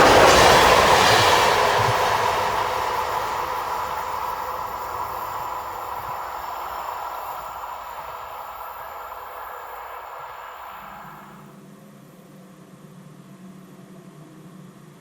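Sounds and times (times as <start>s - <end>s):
passing train rumble: 0.0s - 11.5s.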